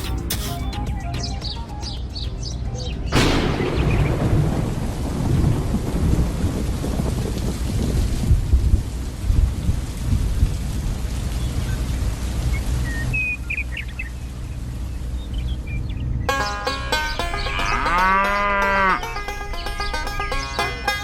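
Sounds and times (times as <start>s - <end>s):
deep rumble: 3.1s - 10.9s
pitched musical sound: 16.3s - 21.0s.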